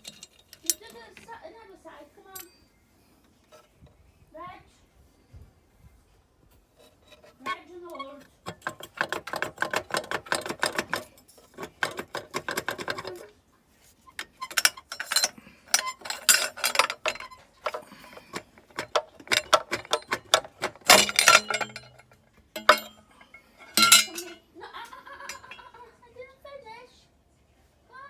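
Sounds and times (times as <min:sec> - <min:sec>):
hand tools clicking and clinking: 0:00.0 - 0:01.3, 0:02.4 - 0:02.6, 0:08.2 - 0:13.3, 0:14.1 - 0:25.7.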